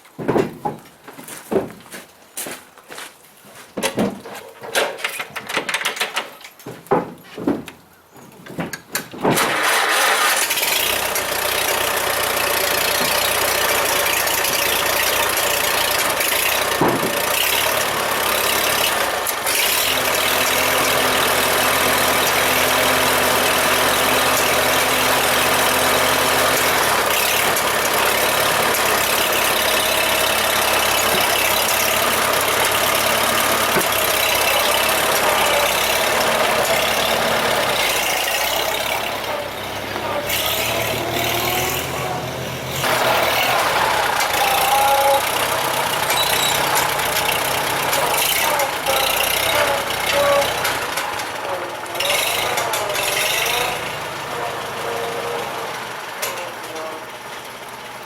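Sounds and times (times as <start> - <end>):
engine running: 9.3 - 58.0.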